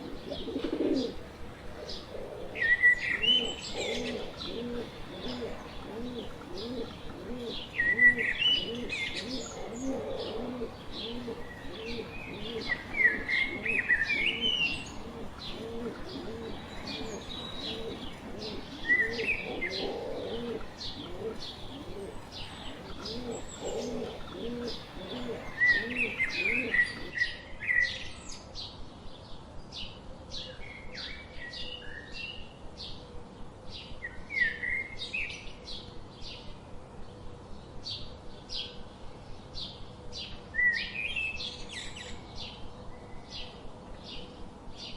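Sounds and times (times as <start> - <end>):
birds chirping: 0.0 - 27.4.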